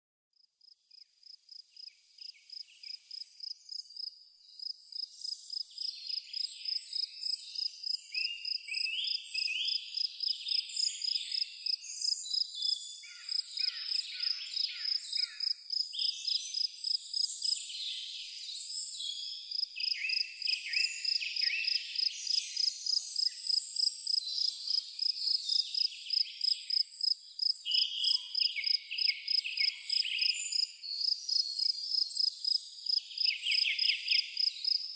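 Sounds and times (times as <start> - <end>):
birds singing: 1.8 - 34.9
crickets chirping: 19.5 - 34.9.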